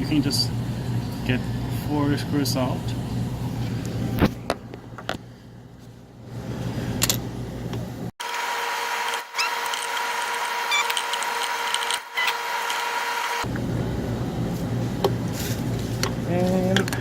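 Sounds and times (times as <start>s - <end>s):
steady hum: 0.0s - 8.1s, 11.6s - 17.0s
screwdriver clicking and scraping: 9.1s - 13.0s.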